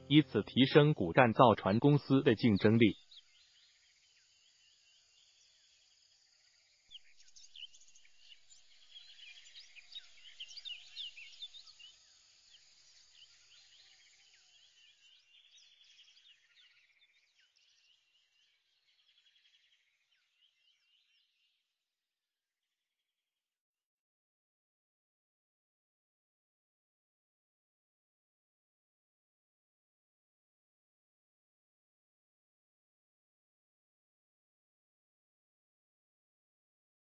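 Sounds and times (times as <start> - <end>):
faint bird chirping: 0.0 - 21.8.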